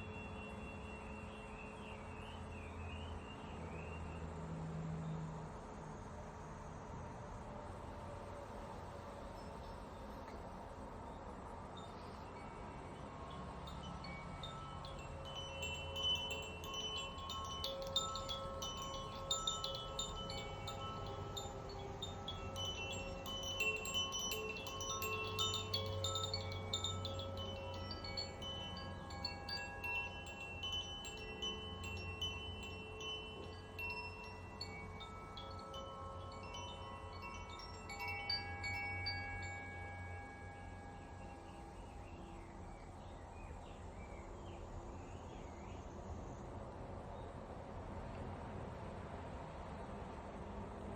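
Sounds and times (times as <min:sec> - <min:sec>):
wind chimes tinkling: 0:09.2 - 0:42.1
singing bowl ringing: 0:11.9 - 0:41.5.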